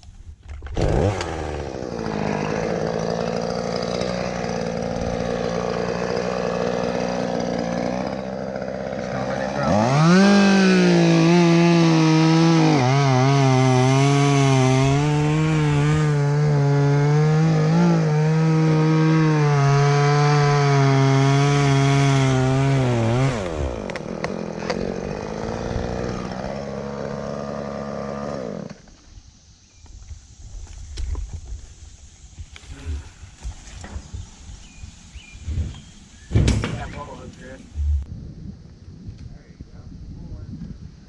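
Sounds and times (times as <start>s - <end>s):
chainsaw cutting wood: 0.4s - 29.0s.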